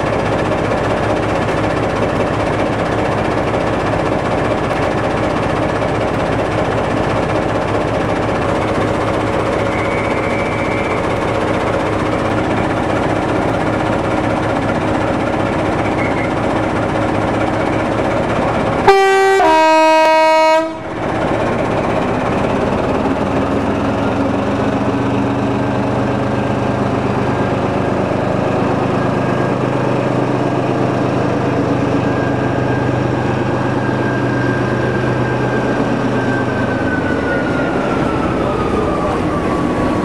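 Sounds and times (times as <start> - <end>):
locomotive engine running: 0.0 - 40.0
locomotive two-tone horn: 18.8 - 20.9.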